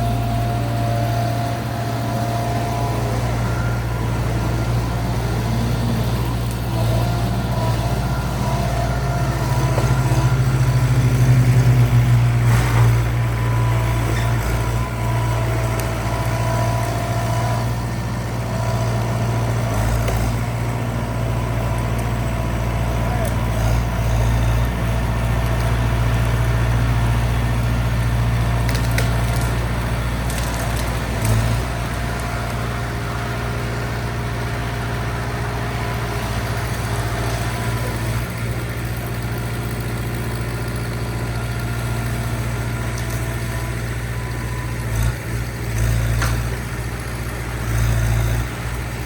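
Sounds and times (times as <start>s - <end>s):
skid steer engine running: 0.0s - 49.0s
wood cracking and snapping: 28.6s - 32.6s.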